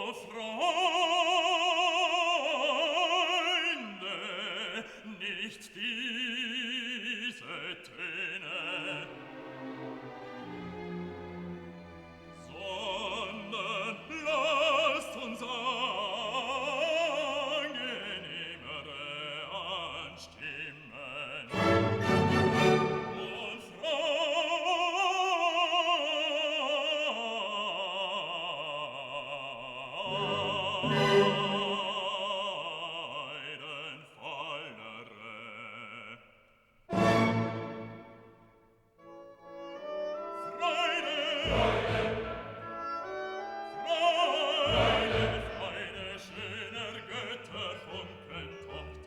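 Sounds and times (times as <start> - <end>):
operatic singer with vibrato: 0.0 - 10.0, 12.4 - 38.4, 39.0 - 49.0
orchestral accompaniment: 8.6 - 18.8, 21.5 - 23.9, 30.0 - 32.5, 36.9 - 49.0.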